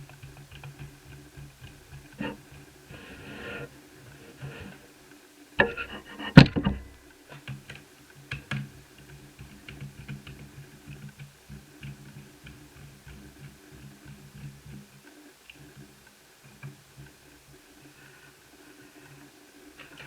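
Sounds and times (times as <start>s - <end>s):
clatter and sharp knock: 5.6s - 6.9s.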